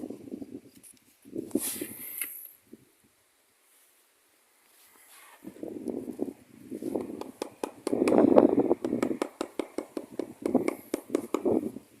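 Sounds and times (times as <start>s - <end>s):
rough scraping or rustling: 4.7s - 7.0s.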